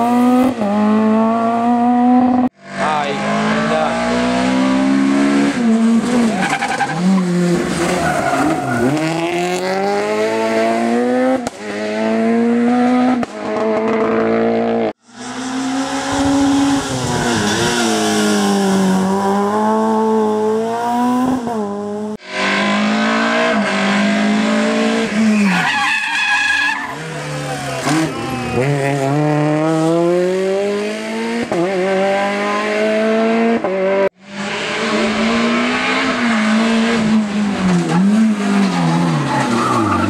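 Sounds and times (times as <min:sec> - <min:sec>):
rally car engines revving: 0:00.0 - 0:40.0.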